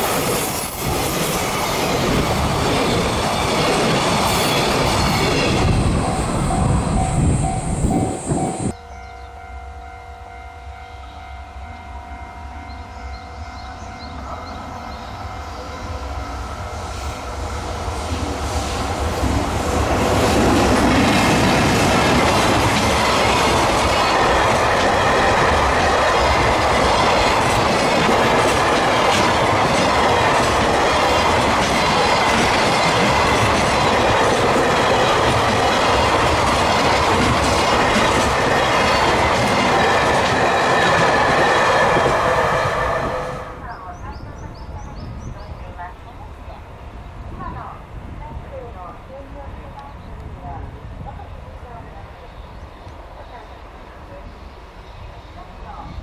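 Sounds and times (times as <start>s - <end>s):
freight train rumbling: 0.0s - 56.0s
wheels clattering over rail joints: 19.9s - 42.3s.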